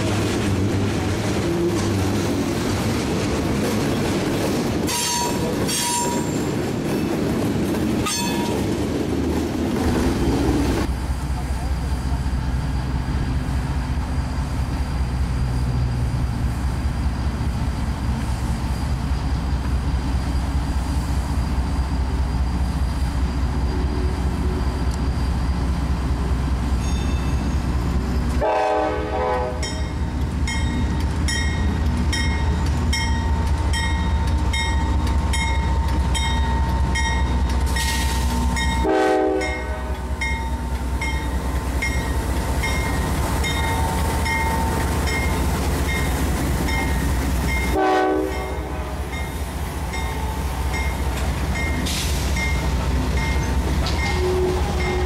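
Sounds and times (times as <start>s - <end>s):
freight train rumbling past: 0.0s - 55.0s
train horn blasts: 4.9s - 6.4s, 28.4s - 30.0s, 38.6s - 40.3s, 47.7s - 49.2s, 53.9s - 55.0s
crossing bell ringing: 4.9s - 6.6s, 8.0s - 8.8s, 26.8s - 27.6s, 29.6s - 37.9s, 38.5s - 55.0s.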